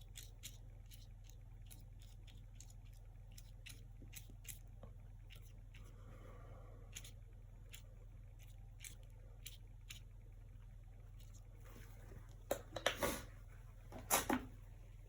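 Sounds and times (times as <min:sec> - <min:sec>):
brush scraping: 0:11.2 - 0:13.6.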